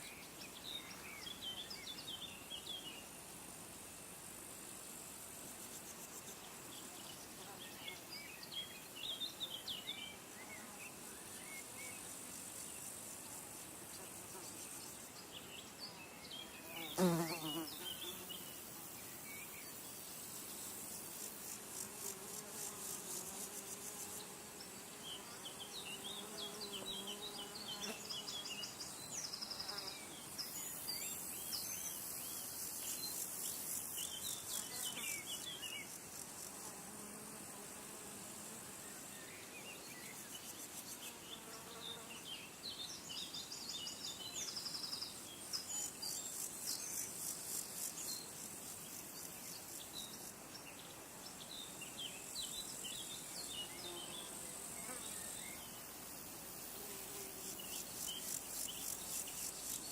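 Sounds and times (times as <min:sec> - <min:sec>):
buzzing insects: 0:00.0 - 0:59.9
flying insect droning past: 0:00.0 - 0:59.9
high-pitched insect trill: 0:16.8 - 0:42.1, 0:42.7 - 0:50.7, 0:51.4 - 0:59.9.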